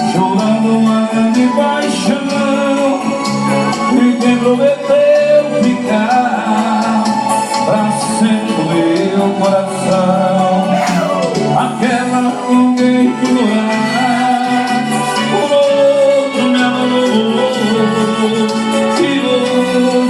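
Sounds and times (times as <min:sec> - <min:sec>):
song with gliding lead melody: 0:00.0 - 0:20.0.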